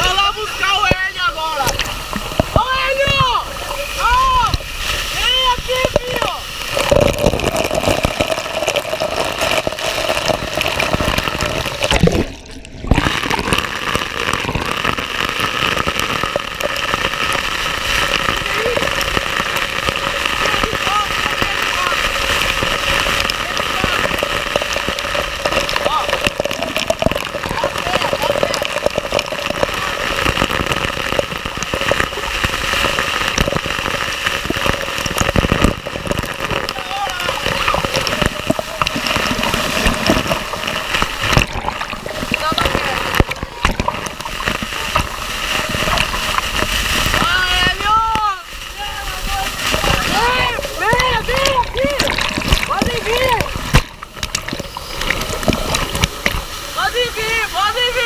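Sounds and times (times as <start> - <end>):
small sharp water splashes: 0.0 - 57.7
waterfall rushing: 0.0 - 58.0.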